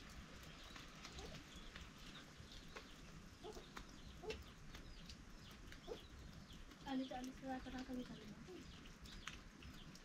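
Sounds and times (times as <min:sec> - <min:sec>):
faint bird calls and chirps: 0:00.3 - 0:10.0.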